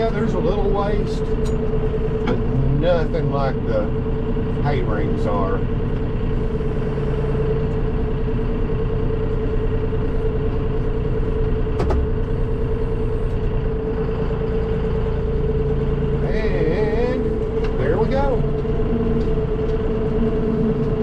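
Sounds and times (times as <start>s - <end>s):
constant whine: 0.0s - 21.0s
tractor engine running: 0.0s - 21.0s.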